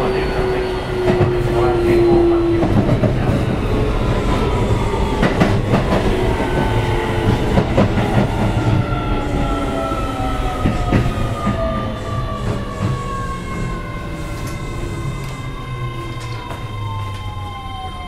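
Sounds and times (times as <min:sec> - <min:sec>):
train running rumble: 0:00.0 - 0:17.4.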